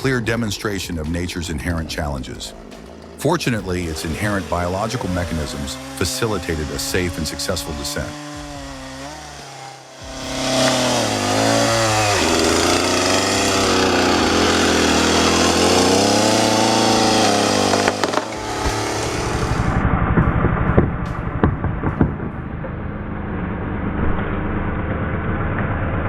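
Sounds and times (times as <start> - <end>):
chainsaw engine revving: 0.0 - 19.8.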